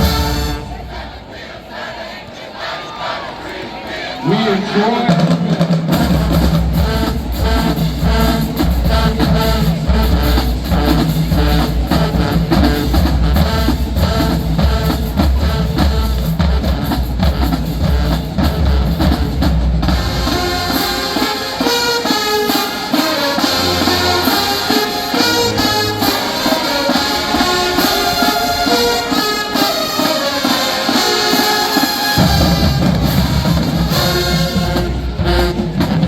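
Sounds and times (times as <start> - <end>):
brass melody: 0.0 - 1.4, 5.9 - 36.0
marching band playing: 0.0 - 36.0
bass drums pounding: 5.9 - 20.6.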